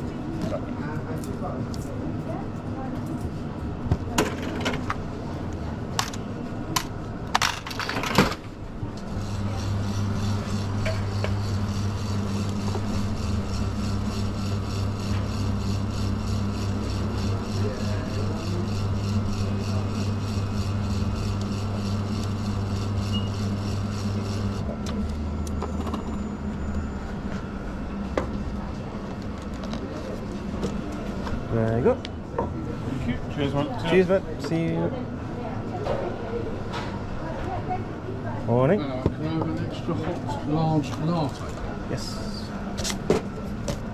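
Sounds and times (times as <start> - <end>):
espresso machine humming: 8.6 - 31.5.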